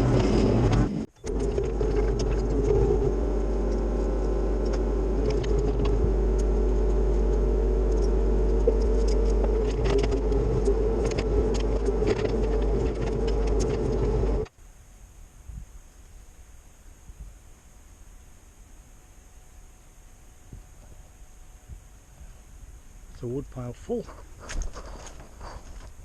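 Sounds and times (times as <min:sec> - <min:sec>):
excavator diesel engine running: 0:00.0 - 0:14.5.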